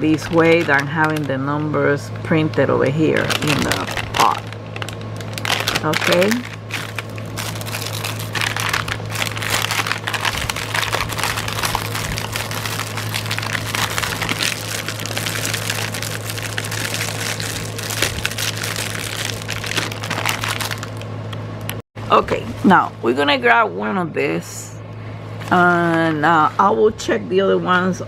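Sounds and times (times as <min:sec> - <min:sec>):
packaging crinkling: 0:00.0 - 0:01.8, 0:02.6 - 0:21.2
low electrical hum: 0:00.0 - 0:28.0.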